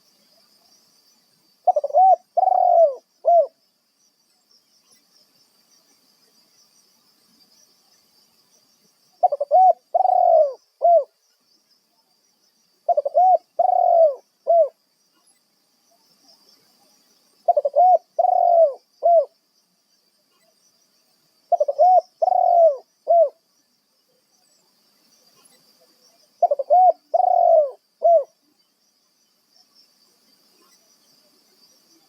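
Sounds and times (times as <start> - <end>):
dove cooing: 1.6 - 3.6, 9.2 - 11.1, 12.9 - 14.8, 17.5 - 19.3, 21.5 - 23.4, 26.4 - 28.3.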